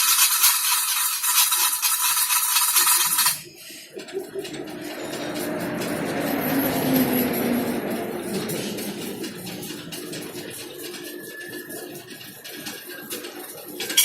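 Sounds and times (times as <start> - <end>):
lathe humming: 3.0 - 14.0.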